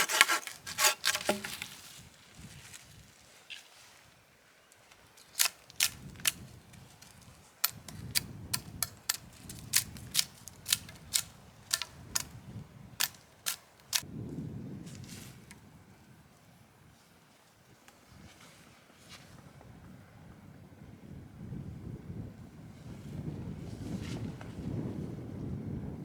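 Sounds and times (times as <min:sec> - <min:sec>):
sharp short clicks: 0:05.4 - 0:06.4, 0:07.6 - 0:12.4, 0:13.0 - 0:14.0.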